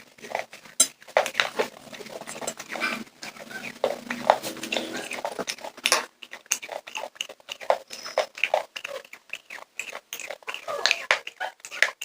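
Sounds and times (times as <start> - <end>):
popcorn crunching while chewed: 0.0 - 12.0.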